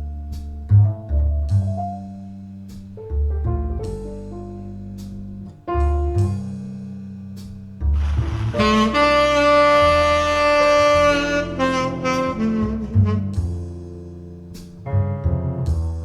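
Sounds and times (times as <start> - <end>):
bass: 0.0 - 16.0
jazz ballad over loudspeakers: 7.9 - 16.0
tenor saxophone: 8.0 - 13.9.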